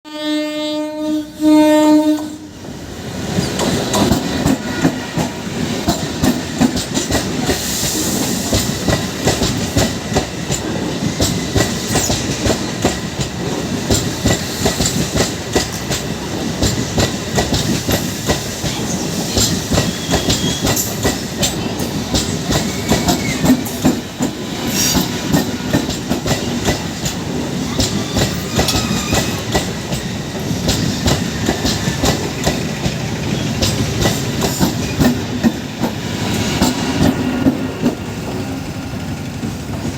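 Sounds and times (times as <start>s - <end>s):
train horn blasts: 0.0s - 2.5s, 28.1s - 29.5s
train wheels clickety-clack: 2.2s - 39.9s.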